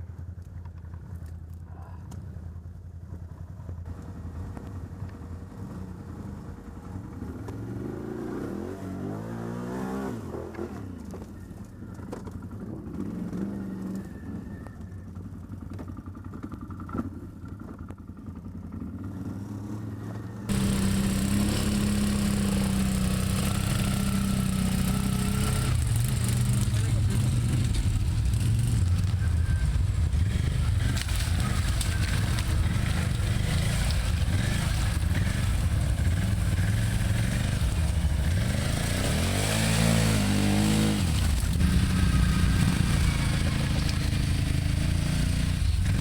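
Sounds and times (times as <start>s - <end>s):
atv engines revving: 20.0s - 46.0s.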